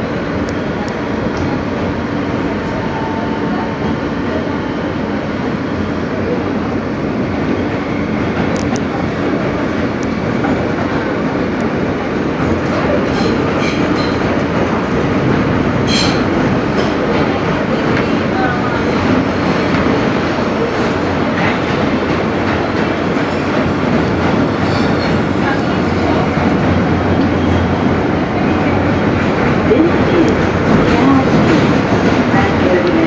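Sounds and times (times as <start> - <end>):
subway wheels rumbling on rail: 0.0 - 33.0.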